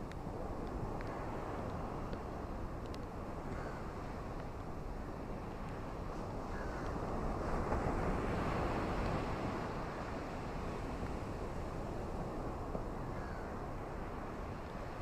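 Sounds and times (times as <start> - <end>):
ocean surf on a beach: 0.0 - 15.0.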